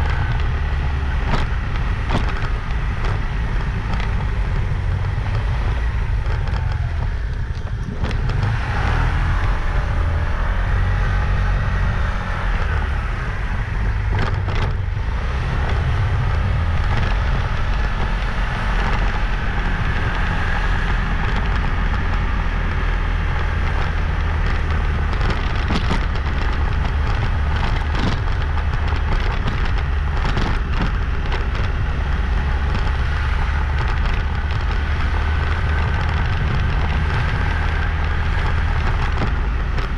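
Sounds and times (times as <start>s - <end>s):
motorbike engine running: 0.0s - 39.9s.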